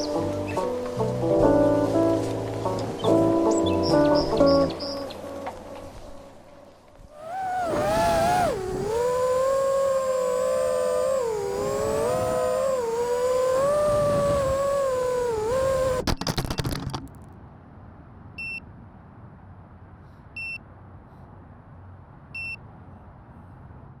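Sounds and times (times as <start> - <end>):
drone motors whining: 0.0 - 1.9, 7.1 - 17.0
low hiss: 7.2 - 16.0.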